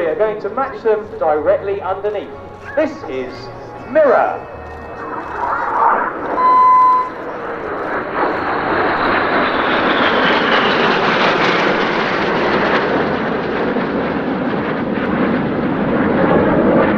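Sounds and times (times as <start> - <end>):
jets flying past: 0.0 - 16.9.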